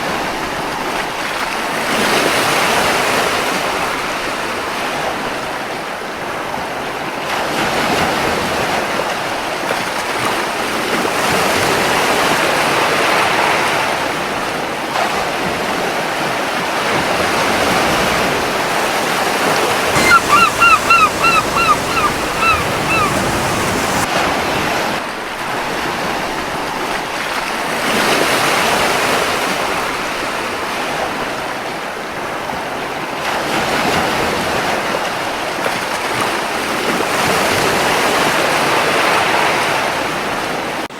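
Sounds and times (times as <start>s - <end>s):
surf washing ashore: 17.3s - 24.1s
seagull calls: 20.0s - 24.1s.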